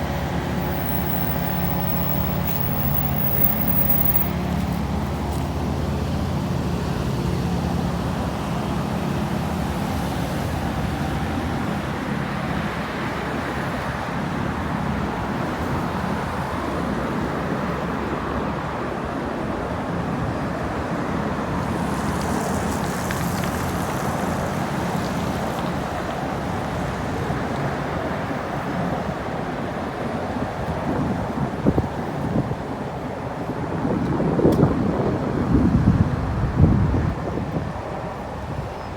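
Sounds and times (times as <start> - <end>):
low engine hum: 0.0 - 11.3
road traffic rumble: 0.0 - 38.9.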